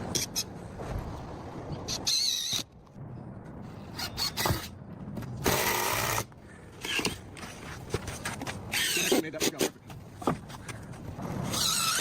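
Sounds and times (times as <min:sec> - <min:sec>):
power drill driving screws into wood: 0:05.4 - 0:06.3.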